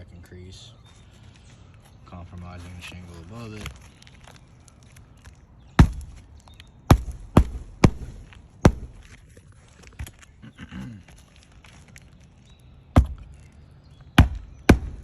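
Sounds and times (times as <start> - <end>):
nails driven into roof shingle: 5.8 - 6.2, 6.9 - 9.2, 14.2 - 15.0.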